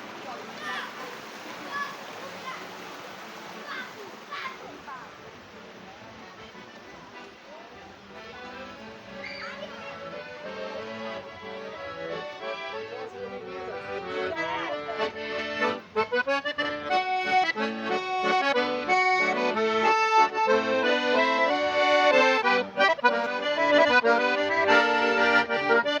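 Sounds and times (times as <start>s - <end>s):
accordion music: 6.4s - 26.0s.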